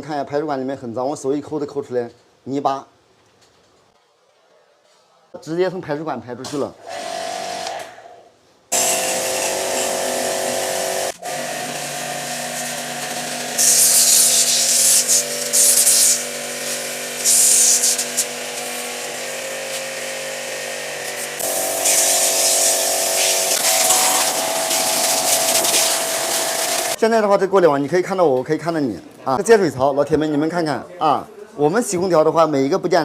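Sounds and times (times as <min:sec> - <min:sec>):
electric washer pump humming: 0:06.9 - 0:07.8, 0:08.7 - 0:27.0
water jet spraying: 0:08.7 - 0:27.0.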